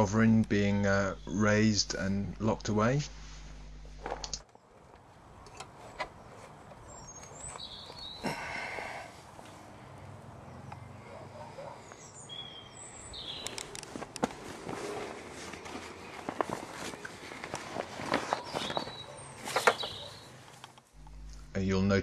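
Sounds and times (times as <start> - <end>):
birds chirping: 0.0 - 2.6, 4.4 - 21.6
sharp clicks: 4.2 - 4.5, 13.4 - 14.2.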